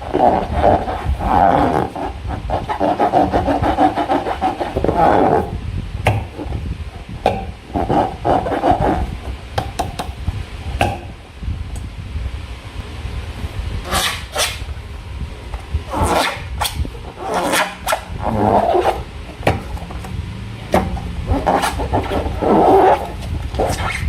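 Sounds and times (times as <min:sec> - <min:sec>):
rubber balloon squeaking: 0:00.0 - 0:06.7, 0:07.3 - 0:09.3, 0:13.8 - 0:14.7, 0:15.9 - 0:20.0, 0:20.7 - 0:24.0.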